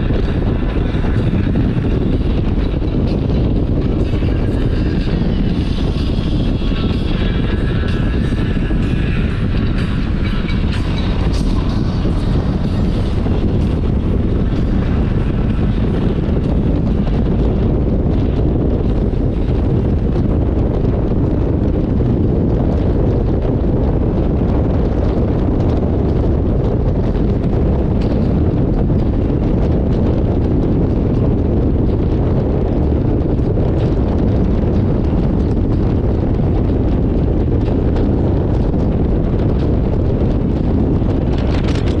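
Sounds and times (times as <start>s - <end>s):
wind rushing over microphone: 0.0s - 42.0s.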